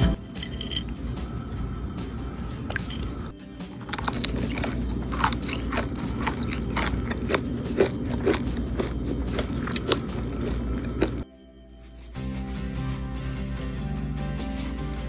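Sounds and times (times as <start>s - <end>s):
crunchy food being chewed: 3.6s - 11.2s.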